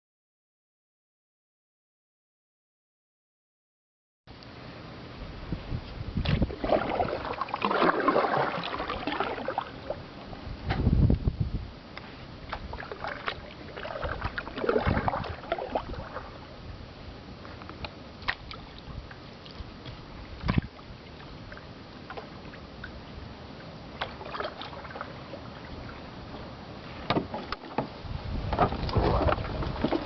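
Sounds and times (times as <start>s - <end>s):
paddle splashing in water: 6.2s - 10.4s, 12.0s - 16.6s, 18.2s - 30.0s
paddle knocks: 26.4s - 30.0s.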